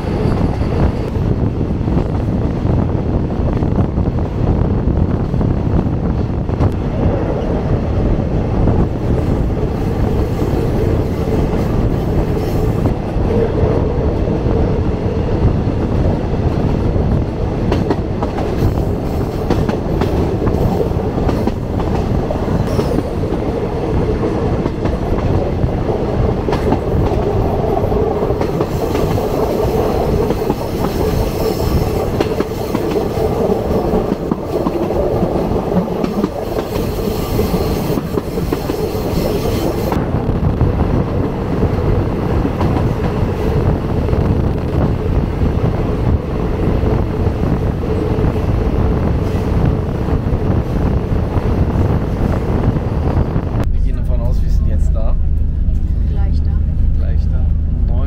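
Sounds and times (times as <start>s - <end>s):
train wheels rumbling on rails: 0.0s - 58.0s
steady hum: 53.6s - 58.0s.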